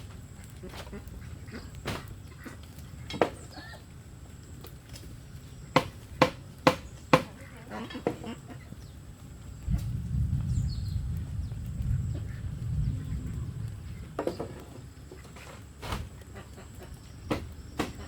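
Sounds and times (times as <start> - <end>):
chickens clucking: 0.0 - 10.0, 11.2 - 18.0
building work knocks: 5.8 - 7.3, 17.3 - 18.0.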